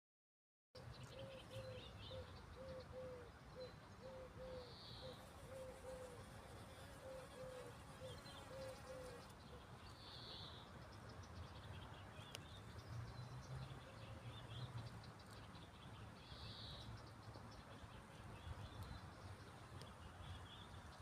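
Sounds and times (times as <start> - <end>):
faint bird chirps: 0.8 - 6.2, 6.9 - 10.8
distant bird calls: 0.9 - 6.3, 6.9 - 20.8.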